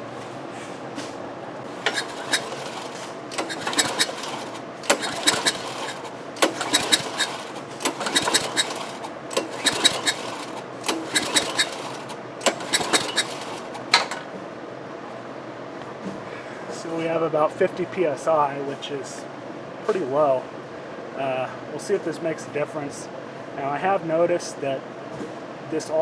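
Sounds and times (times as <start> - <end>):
pull-starter clicking and rattling: 1.8 - 14.3.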